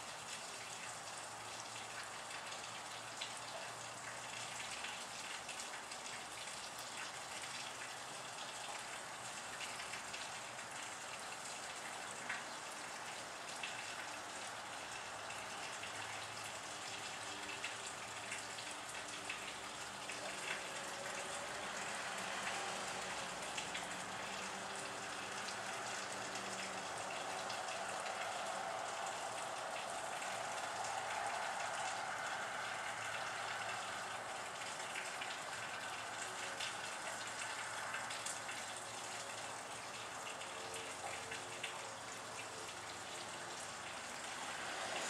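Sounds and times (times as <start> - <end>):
rain hissing: 9.0 - 45.0.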